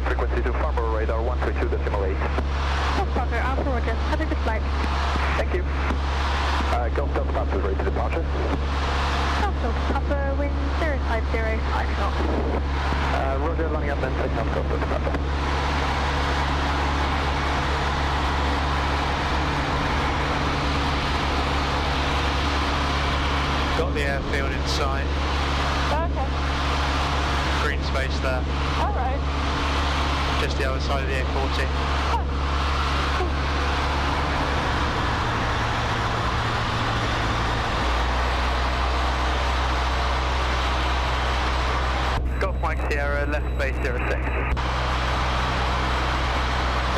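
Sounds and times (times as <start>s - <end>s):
propeller plane engine droning: 0.0s - 46.9s.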